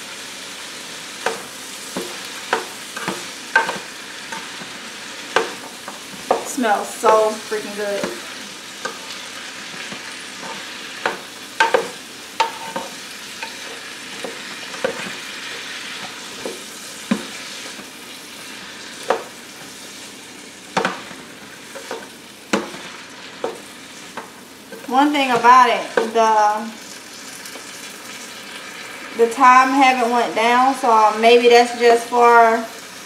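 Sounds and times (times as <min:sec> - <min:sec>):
vegetables sizzling in a pot: 0:00.0 - 0:33.0
spoon scraping and knocking a pot: 0:09.8 - 0:15.2.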